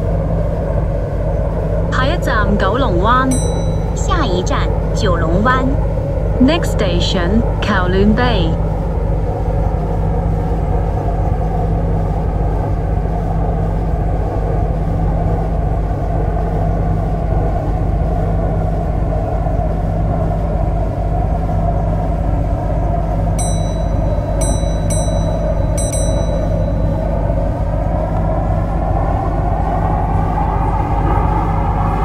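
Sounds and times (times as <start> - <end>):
faint motor whine: 0.0 - 32.0
high-pitched pings: 3.3 - 4.7, 23.4 - 27.3.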